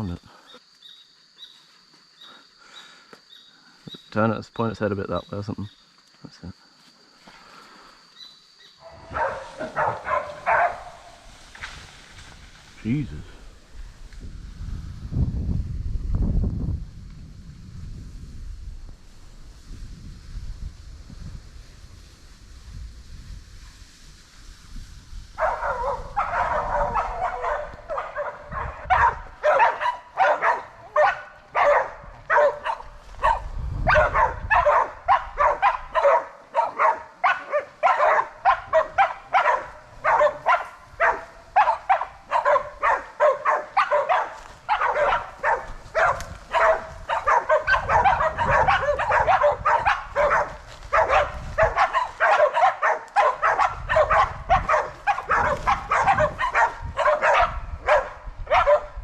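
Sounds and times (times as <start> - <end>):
dogs barking rapidly: 8.8 - 11.2, 25.4 - 59.0.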